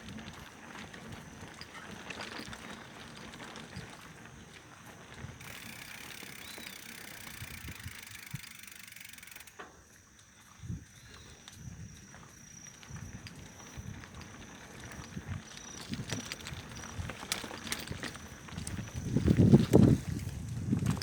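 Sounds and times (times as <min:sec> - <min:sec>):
bike tyres on dirt: 0:00.0 - 0:21.0
bike knocks and rattles: 0:13.0 - 0:21.0.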